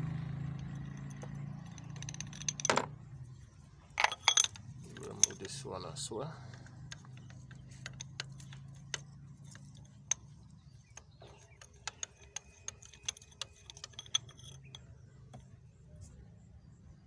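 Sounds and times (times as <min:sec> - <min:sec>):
ratchet wrench clicking: 0:06.5 - 0:15.5.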